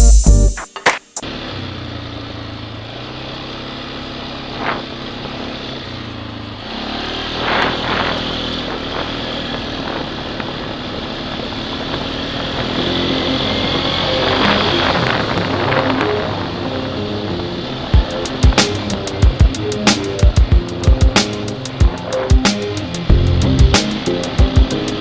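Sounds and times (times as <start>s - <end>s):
atv engine running: 1.2s - 25.0s.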